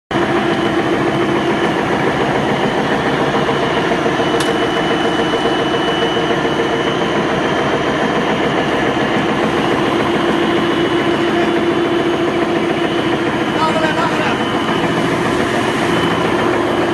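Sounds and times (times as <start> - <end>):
machine drone: 0.1 - 16.9.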